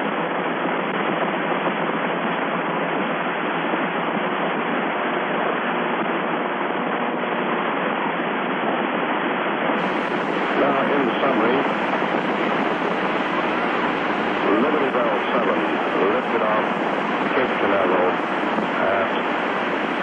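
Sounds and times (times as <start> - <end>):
radio channel hiss: 9.7 - 20.0.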